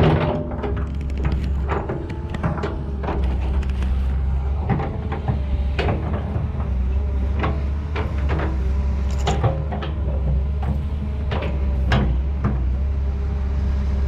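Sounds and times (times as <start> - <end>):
sharp clacks and knocks: 0.0 - 6.8
excavator engine hum: 0.0 - 14.0.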